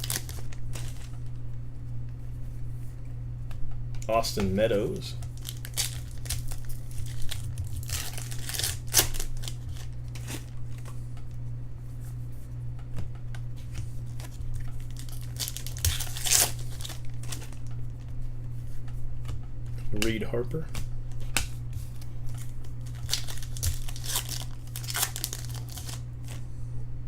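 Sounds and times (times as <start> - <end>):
wrappers tearing and crinkling: 0.0 - 1.3, 5.2 - 11.0, 13.7 - 18.0, 20.7 - 26.4
cards rustling and clicking: 0.0 - 1.4, 4.1 - 11.2, 13.6 - 26.4
steady low hum: 0.0 - 27.0.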